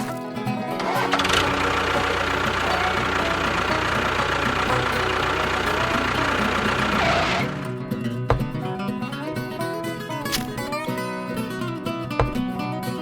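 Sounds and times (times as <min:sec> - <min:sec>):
engine running steadily: 0:00.7 - 0:08.7.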